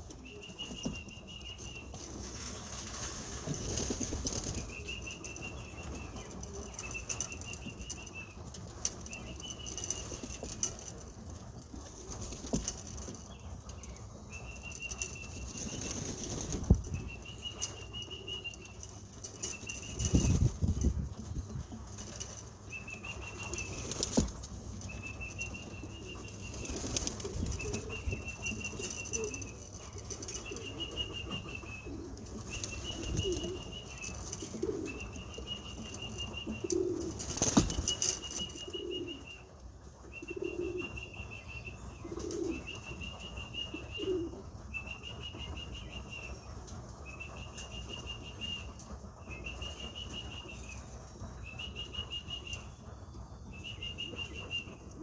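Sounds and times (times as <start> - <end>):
pigeon wings flapping: 0.2 - 8.0, 14.7 - 39.0
pigeons cooing: 11.7 - 45.6.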